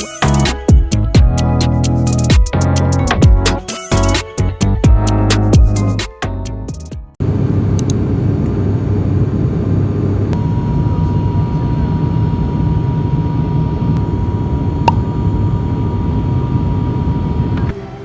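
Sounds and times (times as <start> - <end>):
click: 7.8 - 8.0.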